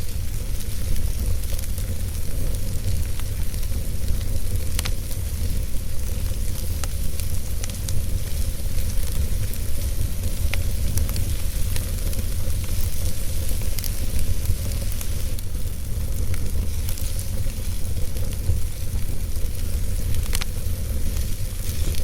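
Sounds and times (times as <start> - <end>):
fire crackling and popping: 0.0 - 22.0
wood fire rumbling: 0.0 - 22.0.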